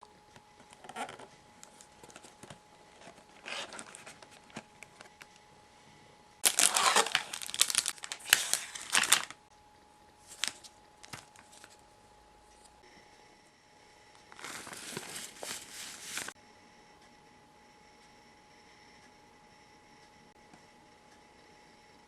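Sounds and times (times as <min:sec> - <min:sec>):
packaging crinkling and tearing: 0:03.0 - 0:05.2, 0:06.4 - 0:09.4, 0:10.3 - 0:11.8, 0:14.3 - 0:16.3.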